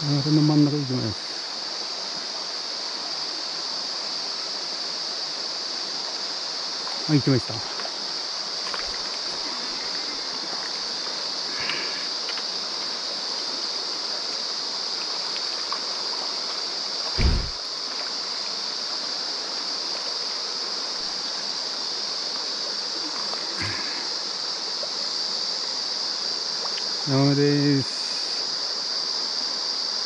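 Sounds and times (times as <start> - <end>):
stream rushing over rocks: 1.2 - 28.8
dull low bump: 17.2 - 17.6.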